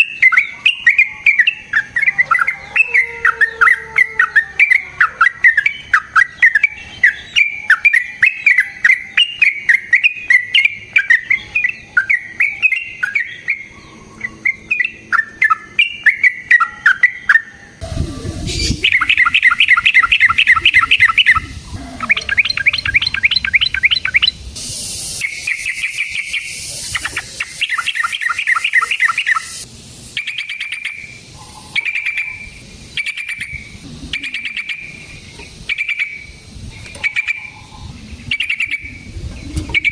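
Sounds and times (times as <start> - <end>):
bird chattering and trilling: 0.0 - 39.9
low rumble: 17.8 - 25.2, 33.6 - 35.7, 36.3 - 39.9.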